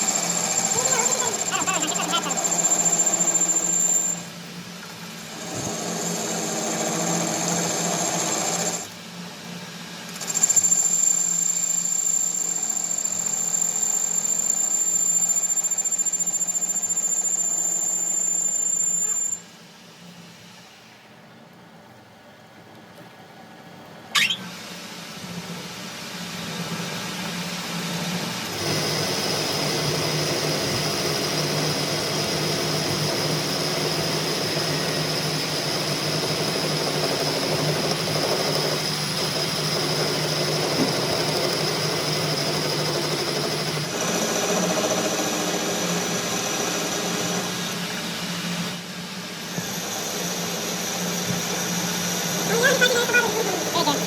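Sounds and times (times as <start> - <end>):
machine humming and whining: 0.0 - 21.2, 23.3 - 54.0.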